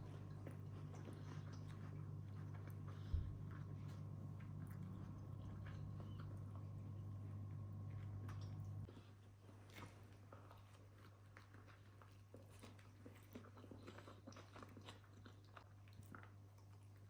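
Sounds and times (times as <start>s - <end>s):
steady low hum: 0.0s - 9.1s
person chewing crunchy food: 0.0s - 17.0s.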